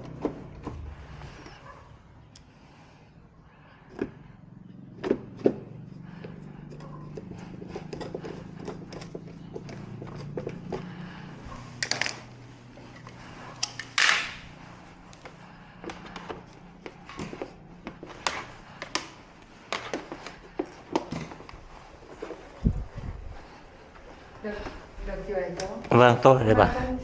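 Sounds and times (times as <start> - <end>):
low hum: 0.0 - 19.5
hands clicking and knocking objects: 5.0 - 22.6.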